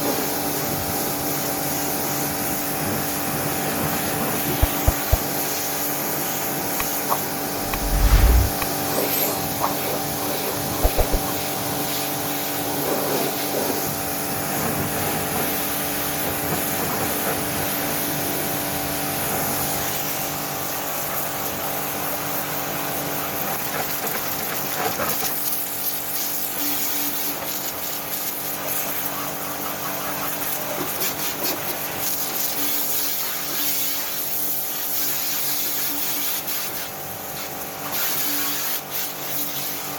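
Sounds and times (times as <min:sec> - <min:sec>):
low thump: 0:07.6 - 0:08.7.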